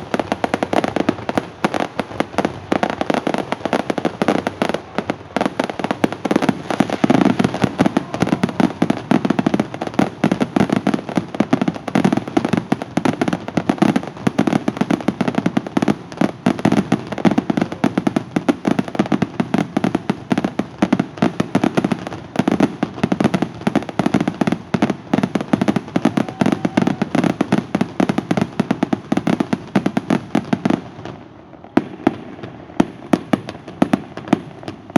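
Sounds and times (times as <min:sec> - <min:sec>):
fireworks bursting: 0:00.0 - 0:34.9.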